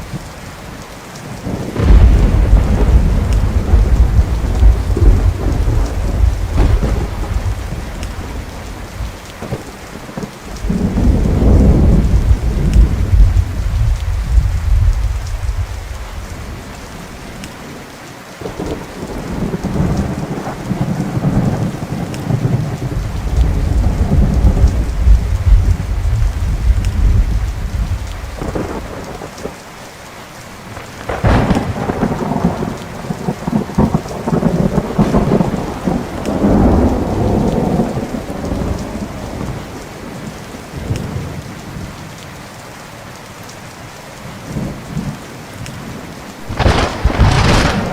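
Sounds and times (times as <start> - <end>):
steady rain: 0.0 - 47.9
thunder rumbling: 1.3 - 17.2, 18.4 - 29.5, 30.7 - 42.0, 45.8 - 47.9
sharp thunder crack: 1.8 - 8.5, 10.7 - 15.8, 22.4 - 28.9, 31.1 - 38.8, 46.4 - 47.9.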